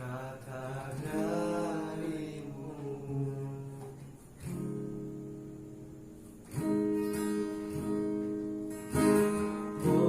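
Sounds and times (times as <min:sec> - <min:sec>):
acoustic guitar chords: 0:00.0 - 0:10.0.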